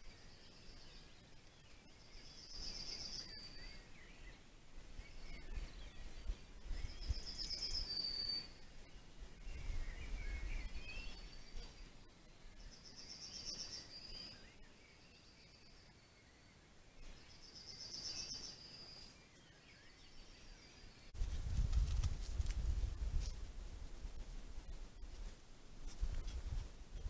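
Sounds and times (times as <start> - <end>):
soft bird chirps: 0.0 - 21.2.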